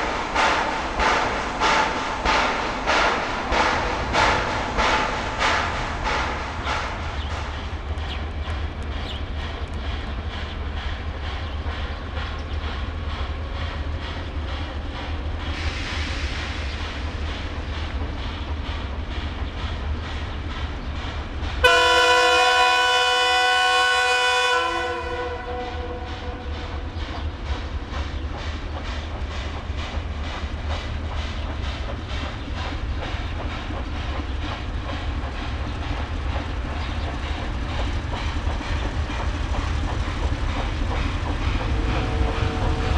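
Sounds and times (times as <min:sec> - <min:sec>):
steam hiss: 0:00.0 - 0:08.0, 0:10.0 - 0:21.6
steam locomotive running: 0:00.0 - 0:42.9
locomotive whistle: 0:21.6 - 0:26.4, 0:41.8 - 0:42.9.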